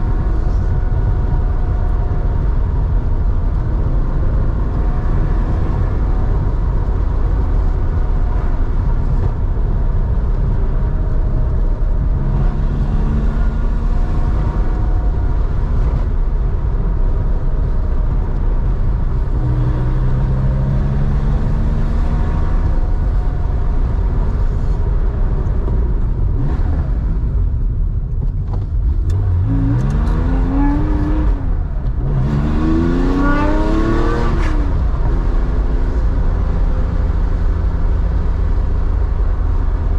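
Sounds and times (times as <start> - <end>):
car engine rumbling: 0.0 - 39.9
car engine revving hard: 29.1 - 35.8.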